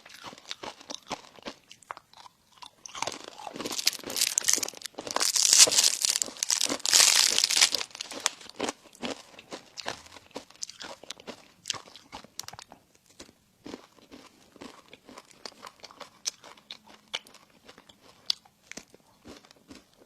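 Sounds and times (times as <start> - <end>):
crunching of crispy food: 0.0 - 20.0
chewing clicks and smacks: 9.8 - 20.0.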